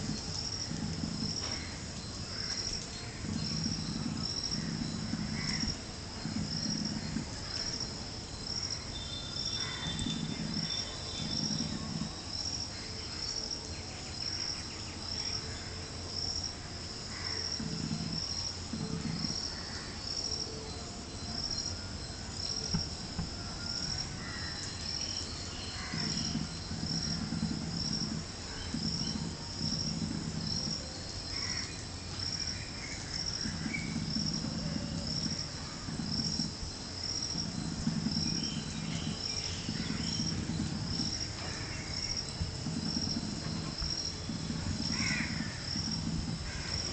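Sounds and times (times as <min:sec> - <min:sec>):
insect chirping: 0:00.0 - 0:46.9
low rumbling: 0:22.8 - 0:46.9.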